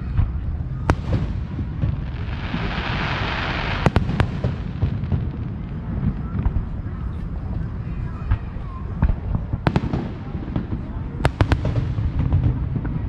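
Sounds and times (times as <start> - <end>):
firework bang: 0.8 - 7.1
firework cracks: 0.9 - 6.9
fireworks crackling hiss: 0.9 - 7.5.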